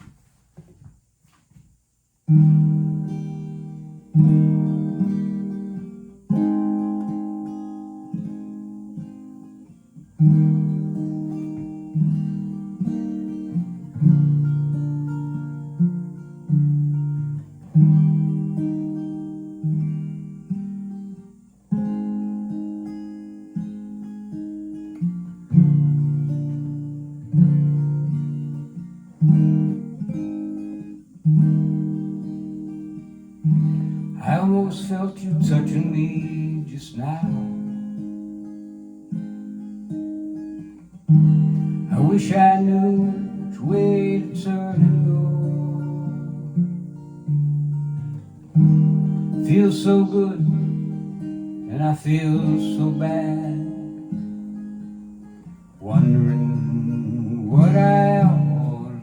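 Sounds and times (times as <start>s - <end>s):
acoustic guitar chords: 0.0s - 59.0s.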